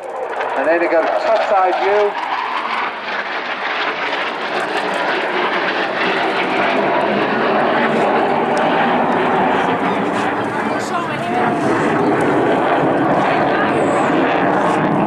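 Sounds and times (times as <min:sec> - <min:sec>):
jet fighter roaring overhead: 0:00.0 - 0:15.0.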